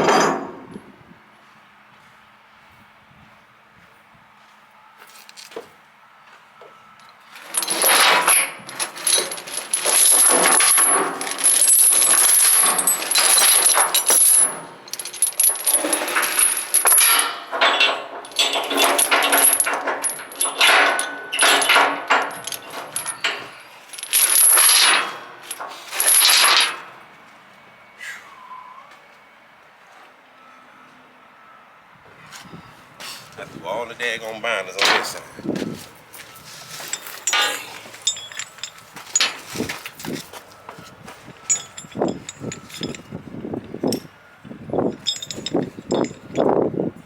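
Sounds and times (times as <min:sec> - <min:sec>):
metal chain rattling: 0:07.4 - 0:27.0, 0:36.1 - 0:40.2, 0:41.4 - 0:43.2, 0:44.8 - 0:46.6.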